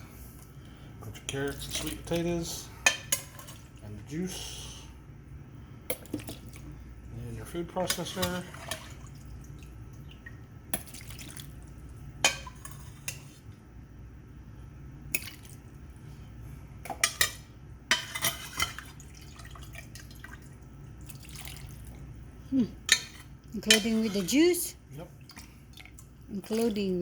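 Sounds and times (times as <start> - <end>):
low steady hum: 0.0 - 27.0
liquid splashing and dripping: 8.5 - 11.8, 18.9 - 22.0.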